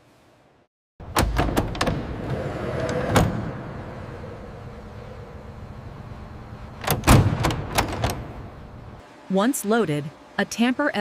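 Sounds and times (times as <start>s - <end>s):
rolling rumble: 1.6s - 9.0s
sharp mechanical clunks: 6.8s - 8.4s.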